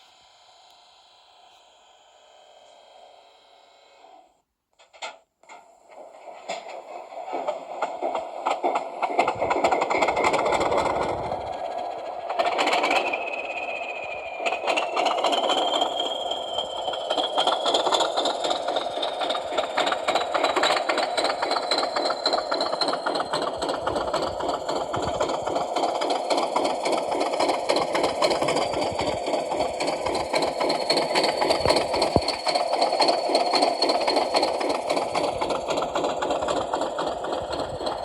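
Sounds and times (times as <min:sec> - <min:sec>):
diesel engine idling through small speaker: 0:19.3 - 0:38.0.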